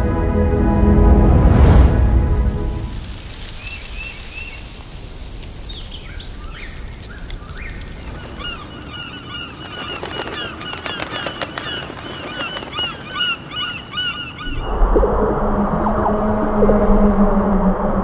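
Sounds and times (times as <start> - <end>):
birds chirping: 0.0 - 14.7
background hiss: 1.6 - 8.6
gulls calling: 3.2 - 14.8.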